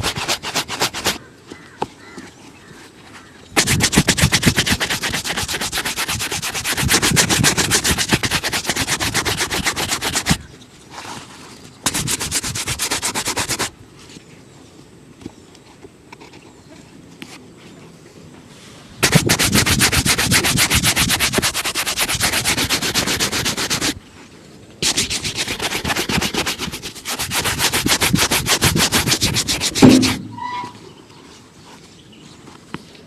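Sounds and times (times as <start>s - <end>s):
shoe being buffed: 0.0s - 1.2s, 3.6s - 10.4s, 11.9s - 13.7s, 19.0s - 24.0s, 24.8s - 30.5s.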